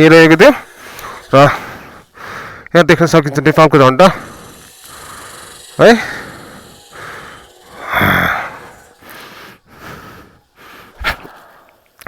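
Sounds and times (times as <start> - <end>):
person breathing hard: 0.7 - 2.7, 4.1 - 12.0.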